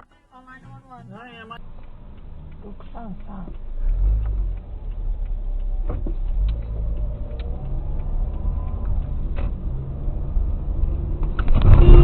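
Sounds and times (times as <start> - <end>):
car engine and road noise: 0.0 - 12.0
faint clicks: 1.6 - 9.8.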